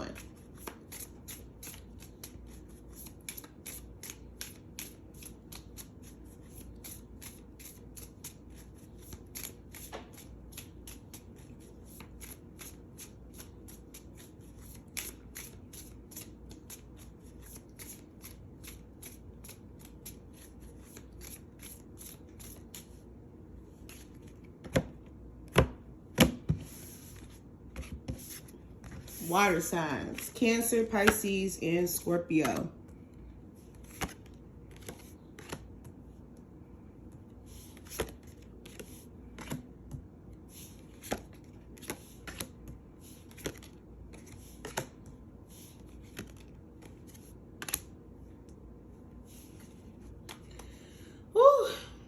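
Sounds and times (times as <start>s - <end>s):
cards being shuffled by hand: 0.1s - 23.0s, 23.8s - 25.0s, 33.6s - 36.0s, 37.5s - 48.0s.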